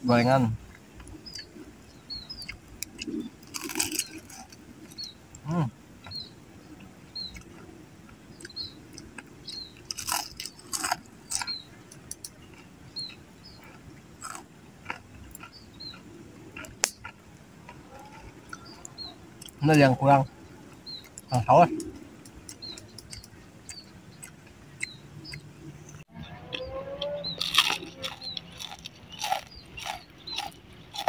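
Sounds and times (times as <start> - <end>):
crunching bites and chewing: 2.4 - 5.1, 7.2 - 19.6, 26.6 - 31.0.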